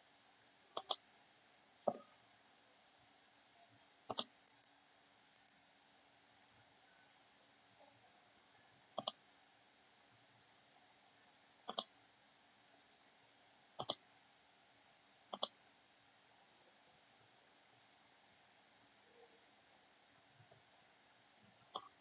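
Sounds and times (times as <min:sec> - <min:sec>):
low room hum: 0:00.0 - 0:22.0
computer mouse double-clicking: 0:00.8 - 0:01.0, 0:04.1 - 0:04.3, 0:09.0 - 0:09.2, 0:11.7 - 0:11.9, 0:13.8 - 0:14.0, 0:15.3 - 0:15.6.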